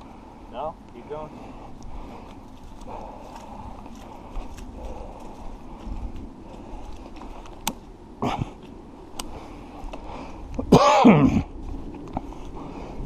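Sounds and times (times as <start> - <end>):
footsteps through brush: 0.8 - 10.4.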